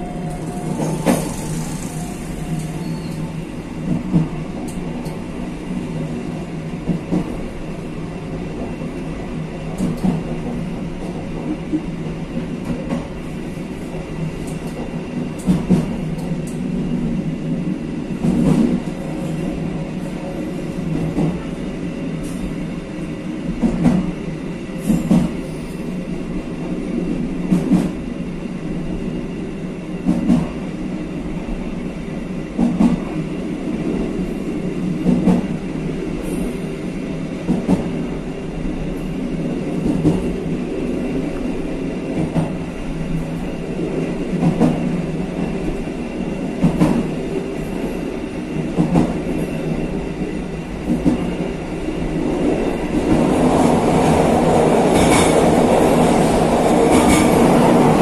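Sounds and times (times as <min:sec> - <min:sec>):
train wheels rumbling on rails: 0:00.0 - 0:58.0
clickety-clack over rail joints: 0:00.2 - 0:05.2, 0:06.0 - 0:07.6, 0:09.6 - 0:13.3, 0:13.9 - 0:16.8, 0:18.2 - 0:21.6, 0:23.5 - 0:24.2, 0:24.8 - 0:25.9, 0:26.7 - 0:28.0, 0:30.0 - 0:30.7, 0:32.5 - 0:36.4, 0:37.4 - 0:38.2, 0:38.9 - 0:49.8, 0:50.7 - 0:58.0.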